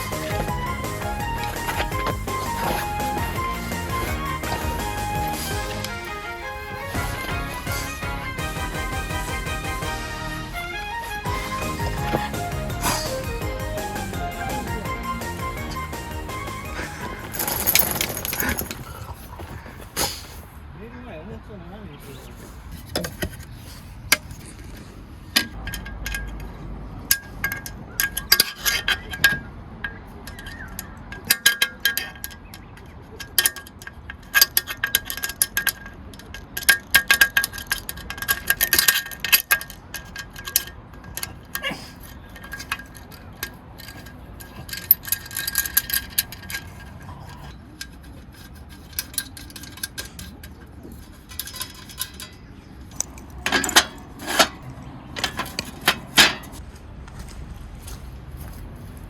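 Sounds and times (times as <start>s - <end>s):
metal pieces clinking: 16.8s - 19.0s, 30.2s - 32.6s, 33.2s - 56.6s.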